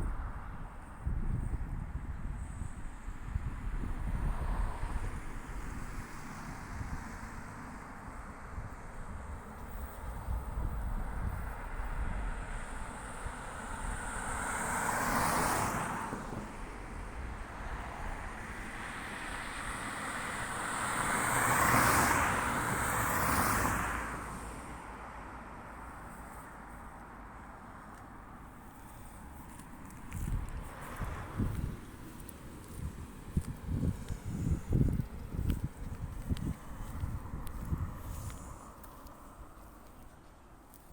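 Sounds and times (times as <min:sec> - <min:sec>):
wind buffeting microphone: 0:00.0 - 0:14.4, 0:29.1 - 0:40.2
road vehicles passing by: 0:00.0 - 0:40.9.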